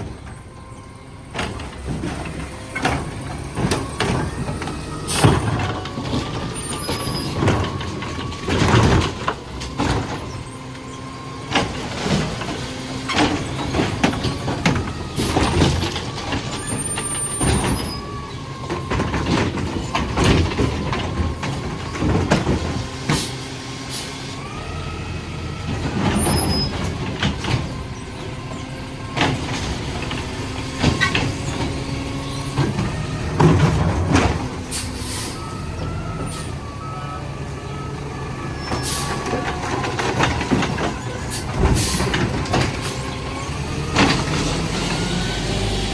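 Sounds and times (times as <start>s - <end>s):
carts banging and clattering: 0.0s - 45.9s
garbage truck engine and hydraulics: 0.0s - 45.9s
air brakes hissing: 23.1s - 24.3s, 34.7s - 35.5s, 38.6s - 39.2s, 41.3s - 42.2s.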